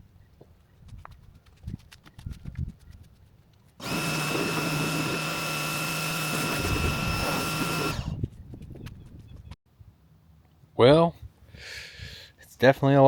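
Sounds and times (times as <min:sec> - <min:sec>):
electric machine whining: 0:03.8 - 0:08.2.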